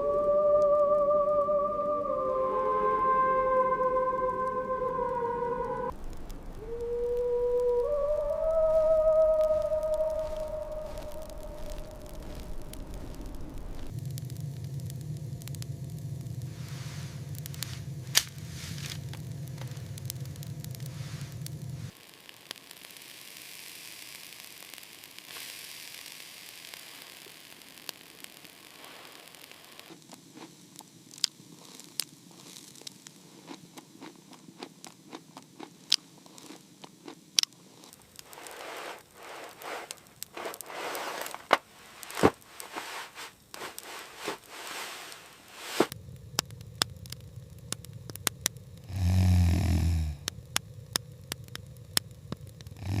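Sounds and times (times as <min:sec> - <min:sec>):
low rumbling: 0:00.0 - 0:21.9, 0:38.2 - 0:53.0
rushing noise: 0:02.5 - 0:14.0, 0:38.2 - 0:46.0
faint hiss: 0:04.4 - 0:53.0
wood fire crackling and popping: 0:05.9 - 0:53.0.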